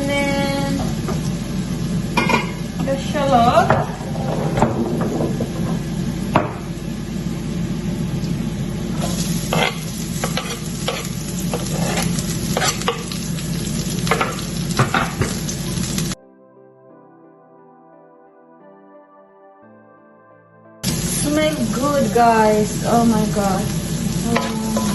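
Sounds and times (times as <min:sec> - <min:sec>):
garlic sizzling in oil: 0:00.0 - 0:03.7, 0:05.8 - 0:16.2, 0:20.8 - 0:24.9
utensil scraping a pan: 0:09.0 - 0:13.2
soft background music: 0:16.2 - 0:22.1.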